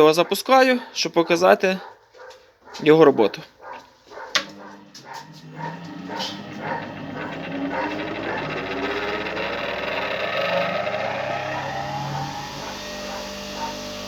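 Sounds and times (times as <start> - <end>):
bench grinder motor whining: 4.1 - 14.0.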